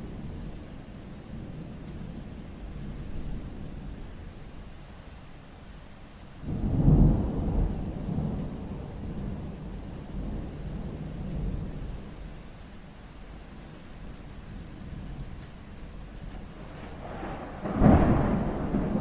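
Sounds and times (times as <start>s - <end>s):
steady rain: 0.0s - 19.0s
thunder rumbling: 6.4s - 12.2s, 14.5s - 19.0s.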